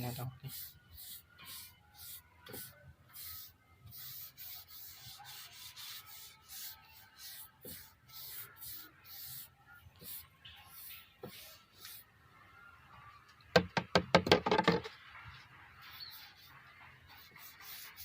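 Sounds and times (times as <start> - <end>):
rubbing strokes on wood: 0.0 - 12.0.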